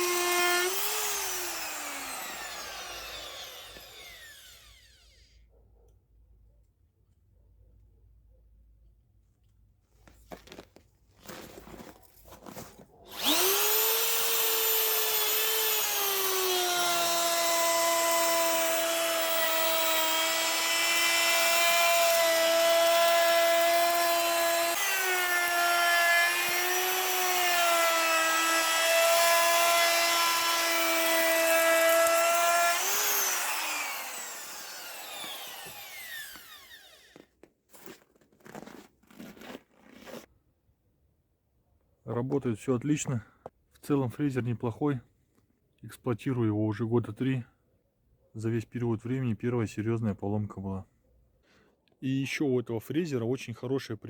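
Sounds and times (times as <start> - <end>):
router motor whining: 0.0 - 5.4, 13.1 - 37.3.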